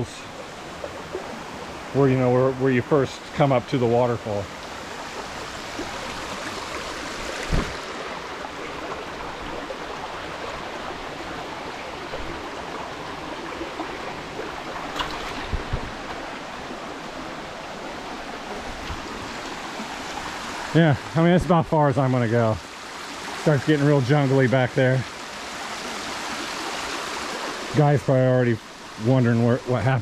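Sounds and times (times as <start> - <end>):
waterfall water rushing: 0.0 - 30.0
brief thumps: 7.4 - 7.8.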